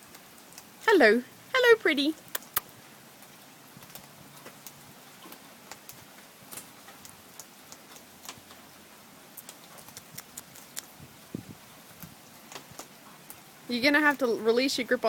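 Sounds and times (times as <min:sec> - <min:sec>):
bird beak cracking seeds: 0:02.3 - 0:02.7, 0:09.4 - 0:11.0.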